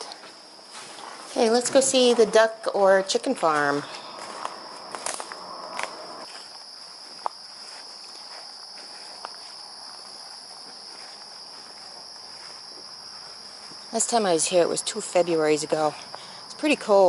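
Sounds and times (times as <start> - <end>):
insect chorus trilling: 1.3 - 17.0
footsteps through brush: 3.6 - 14.0.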